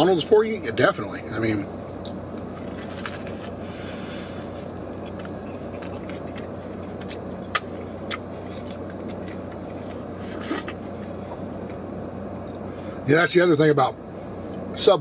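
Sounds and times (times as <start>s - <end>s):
person chewing a sandwich: 2.0s - 12.7s.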